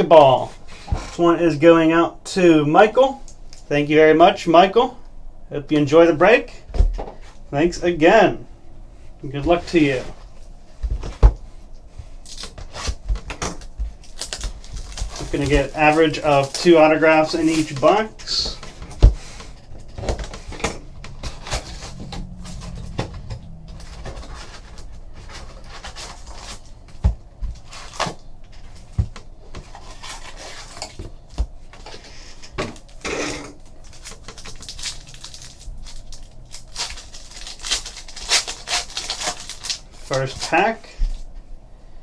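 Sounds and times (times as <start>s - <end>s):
wrapper crinkling: 13.6s - 18.6s, 33.6s - 40.5s.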